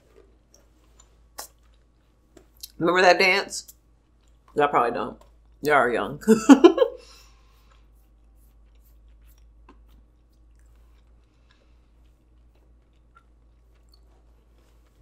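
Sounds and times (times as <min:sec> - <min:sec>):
close-mouthed chewing: 0:00.0 - 0:02.8, 0:03.6 - 0:04.6, 0:07.0 - 0:15.0.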